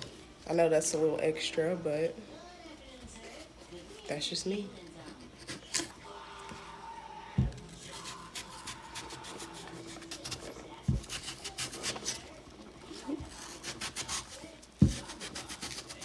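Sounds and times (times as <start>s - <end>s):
blade scraping apple skin: 4.8s - 6.0s, 7.4s - 16.0s
dull thumps: 7.4s - 8.0s, 10.8s - 11.3s, 14.8s - 15.1s.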